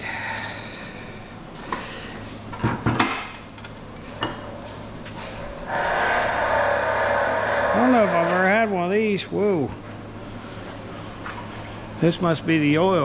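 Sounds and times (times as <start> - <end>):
steady rushing noise: 5.6 - 8.6.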